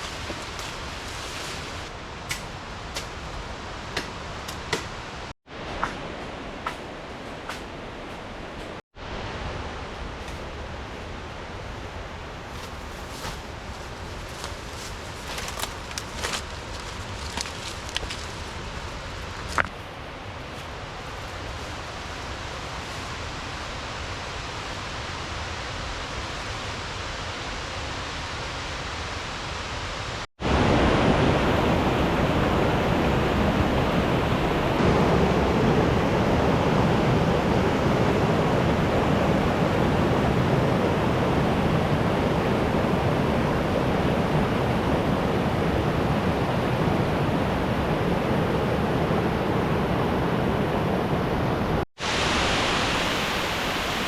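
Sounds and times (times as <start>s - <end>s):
waterfall rushing: 52.0s - 54.0s.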